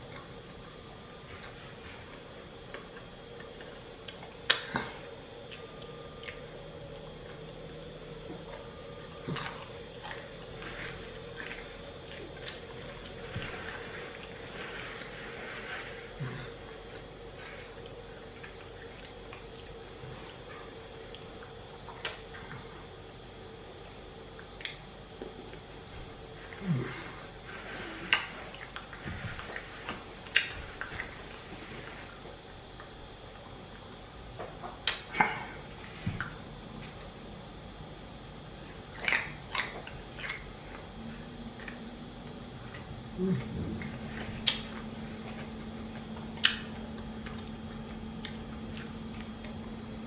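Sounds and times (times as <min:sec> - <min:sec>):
faint steady hum: 0:00.0 - 0:50.0
chewing food: 0:01.2 - 0:22.8, 0:38.6 - 0:50.0.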